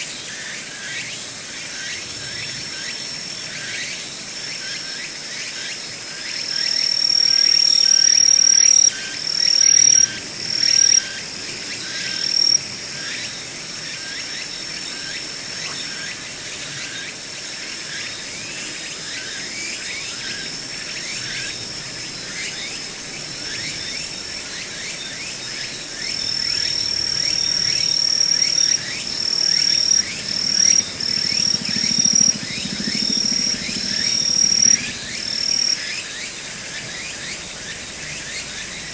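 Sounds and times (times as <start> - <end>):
crickets chirping: 0.0 - 38.9
insect high trill: 4.6 - 15.1, 19.0 - 38.9.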